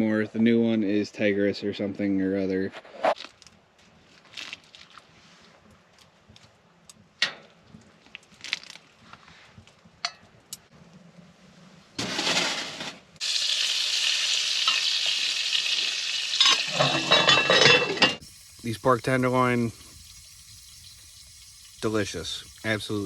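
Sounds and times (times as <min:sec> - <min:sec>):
meat sizzling in a frying pan: 0:13.2 - 0:23.0.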